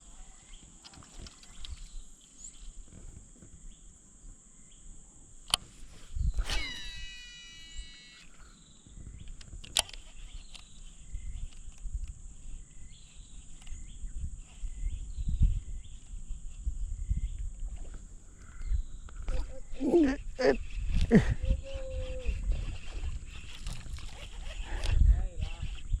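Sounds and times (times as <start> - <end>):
high insect drone: 0.0 - 26.0
bird or frog chirps: 6.2 - 9.4, 18.4 - 23.9
fishing reel whirring: 6.3 - 8.4, 19.3 - 26.0.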